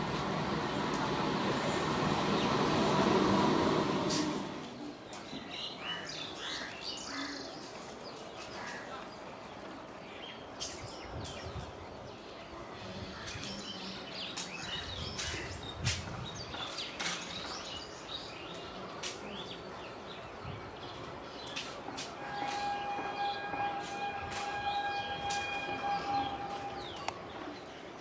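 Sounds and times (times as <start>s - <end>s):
outdoor background noise: 0.0s - 28.0s
birds chirping: 19.3s - 27.9s.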